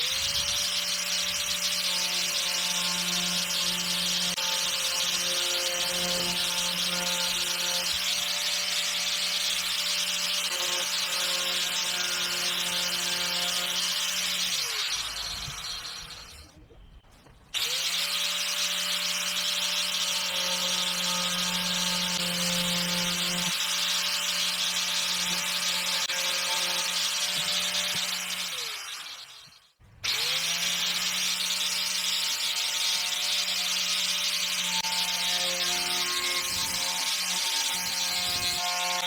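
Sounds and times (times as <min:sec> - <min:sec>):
electric power tool running: 0:17.6 - 0:29.4.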